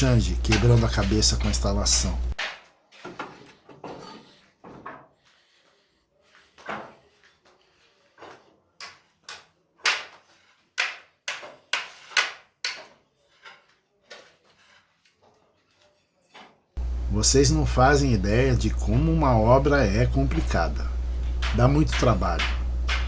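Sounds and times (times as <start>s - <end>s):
sharp knocks and clacks: 8.8s - 13.0s.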